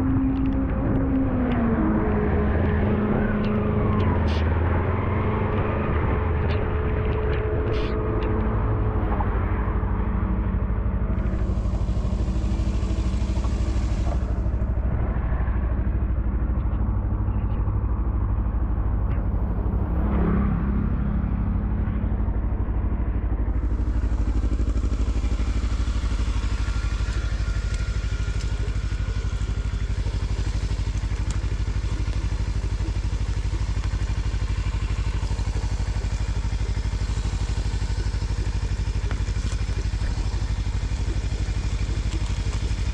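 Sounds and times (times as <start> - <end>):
vehicle rumbling on road: 0.0 - 42.9
wet tyre spray hiss: 11.2 - 14.4, 24.4 - 42.9.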